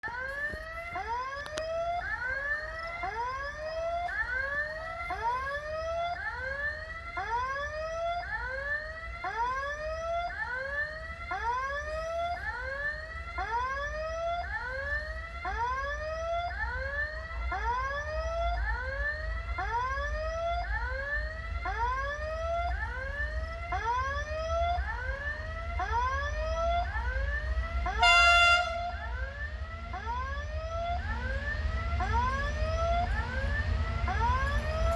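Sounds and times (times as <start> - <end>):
level-crossing warning signal: 0.0 - 34.9
low train rumble: 11.0 - 34.9
locomotive horn blast: 27.8 - 29.2.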